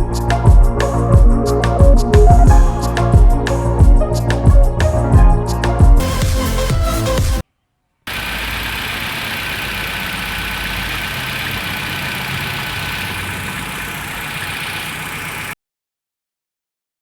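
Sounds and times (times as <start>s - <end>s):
car engine idling: 8.1s - 15.6s.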